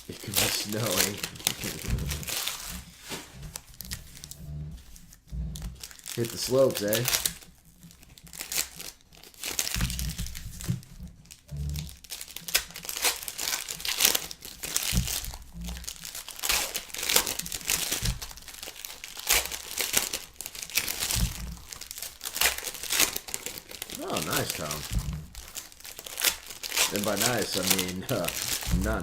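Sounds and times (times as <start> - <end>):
cards being handled: 0.0 - 4.3, 20.8 - 29.0
card pack wrappers crinkling: 0.0 - 29.0
short low thuds: 1.1 - 5.8, 9.8 - 11.9, 21.1 - 21.6, 24.2 - 25.4, 28.2 - 29.0.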